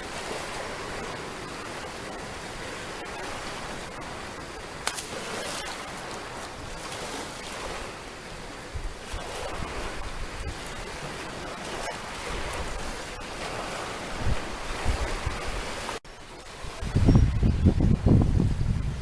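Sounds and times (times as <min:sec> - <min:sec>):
small waves washing on shore: 0:00.0 - 0:19.0
wind rumble on microphone: 0:12.2 - 0:19.0.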